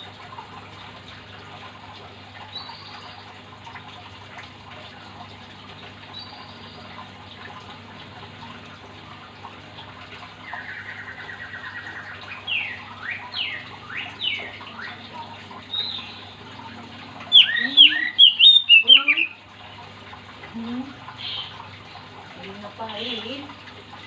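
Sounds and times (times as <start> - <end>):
songbird singing: 10.4 - 16.6, 17.2 - 19.5, 21.2 - 22.0.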